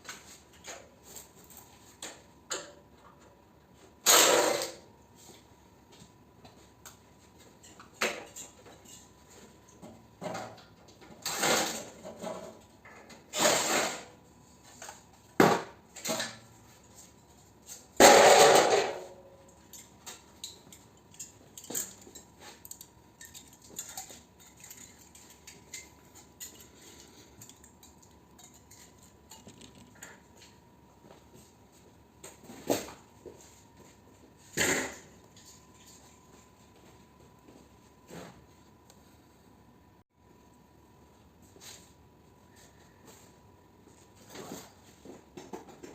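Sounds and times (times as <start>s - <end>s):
metal scrap clanking: 18.0s - 19.2s.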